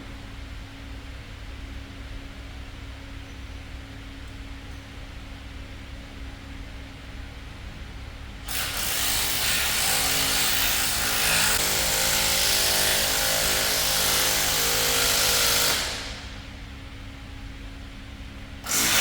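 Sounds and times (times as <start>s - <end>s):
power tool running: 8.5s - 16.3s, 18.6s - 19.0s.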